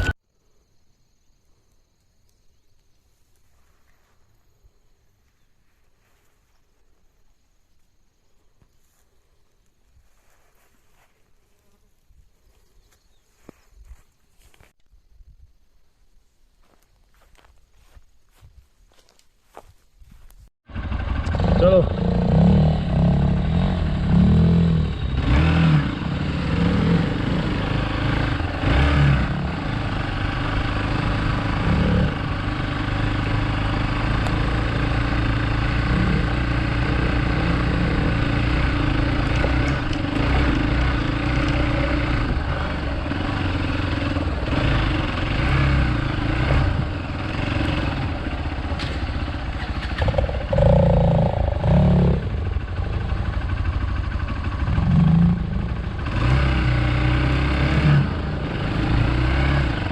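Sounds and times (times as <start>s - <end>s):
motorcycle engine revving off road: 0.0s - 0.2s, 19.5s - 59.9s.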